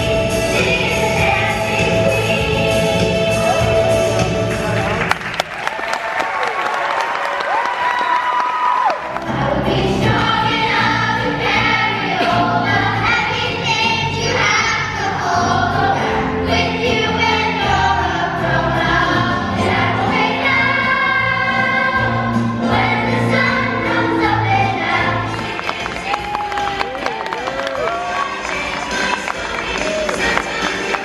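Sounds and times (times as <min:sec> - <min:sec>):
group singing: 0:00.0 - 0:04.3, 0:09.2 - 0:26.2, 0:27.8 - 0:31.0
instrumental accompaniment with bass: 0:00.0 - 0:05.4, 0:09.0 - 0:31.0.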